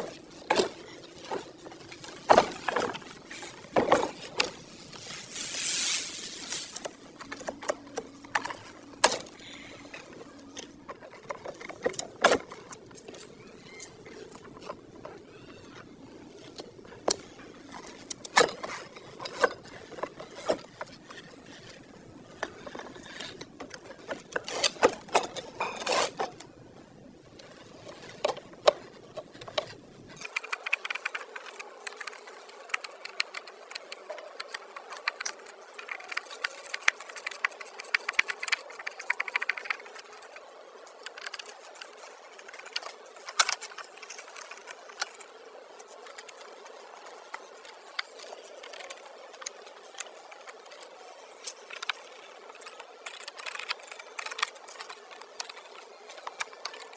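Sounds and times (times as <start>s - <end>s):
short hiss: 5.2s - 6.9s.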